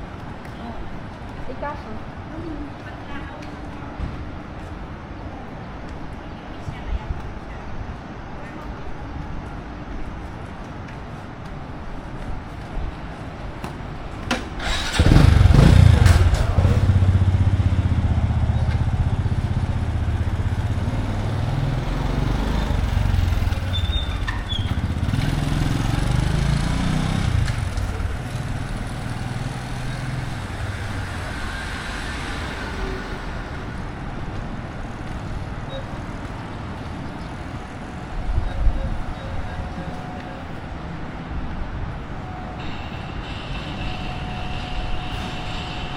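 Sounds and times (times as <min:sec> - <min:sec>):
motor vehicle engine running: 0:14.6 - 0:36.5.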